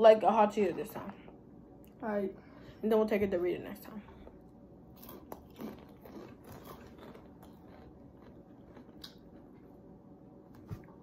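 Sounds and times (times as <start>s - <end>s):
faint crunches of chewing: 5.0s - 9.7s.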